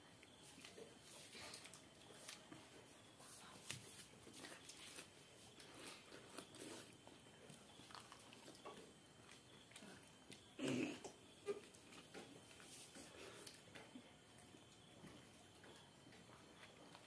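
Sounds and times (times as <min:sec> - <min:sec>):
person chewing food: 0:03.7 - 0:14.0.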